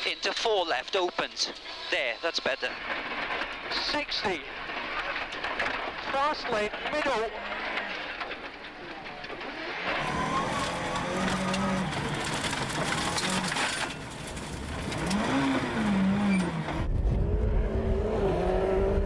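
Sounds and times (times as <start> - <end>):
rally car engine revving: 9.3 - 19.0
engine with heavy low rumble: 10.0 - 19.0.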